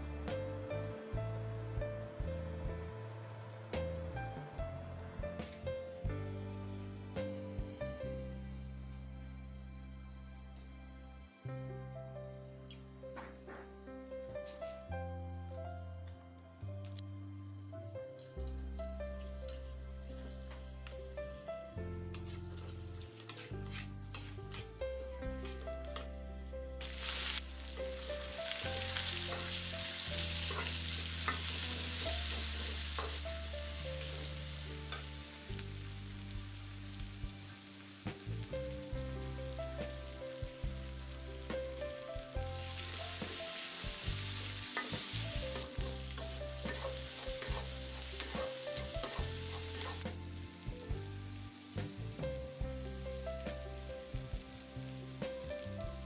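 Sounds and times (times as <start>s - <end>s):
onion sizzling in hot oil: 22.2s - 24.6s, 26.8s - 56.0s
metal spatula scraping pan: 22.2s - 24.7s, 44.7s - 50.0s.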